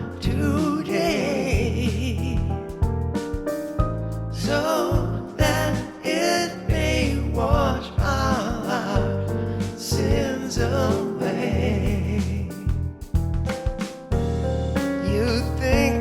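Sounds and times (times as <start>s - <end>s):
wordless sung vocal: 0.0s - 2.8s, 4.3s - 12.8s, 15.0s - 16.0s
bass and accompaniment: 0.0s - 16.0s.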